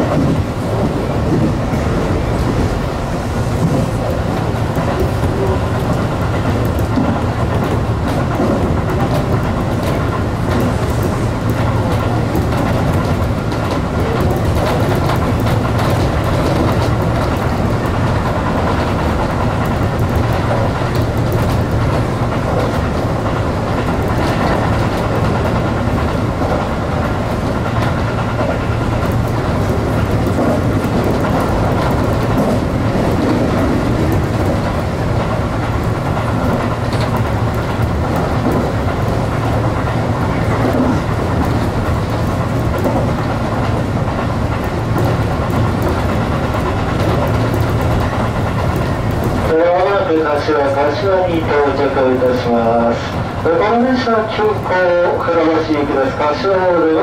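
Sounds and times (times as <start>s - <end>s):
electric train hum: 0.0s - 57.0s
wheels rolling on rails: 0.0s - 57.0s
clicks over rail joints: 3.6s - 56.2s.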